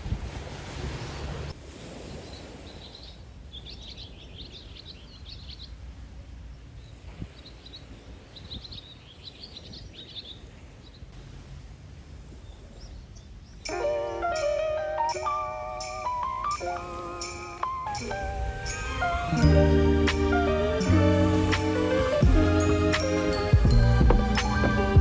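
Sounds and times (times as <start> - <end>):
wind and surf: 0.0 - 25.0
small birds twittering: 2.0 - 11.2, 12.4 - 18.8
music: 13.7 - 25.0.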